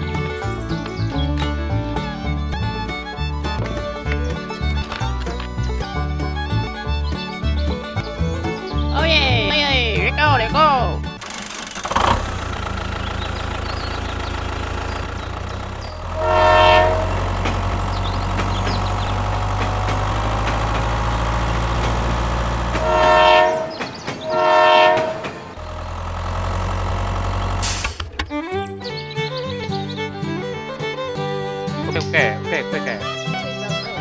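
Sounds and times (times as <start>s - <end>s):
horn blasts: 16.0s - 25.6s.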